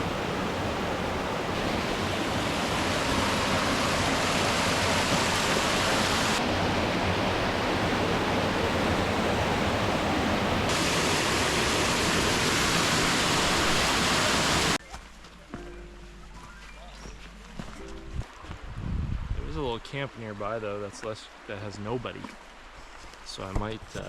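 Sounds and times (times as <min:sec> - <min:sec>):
whitewater rushing in stream rapids: 0:00.0 - 0:14.8.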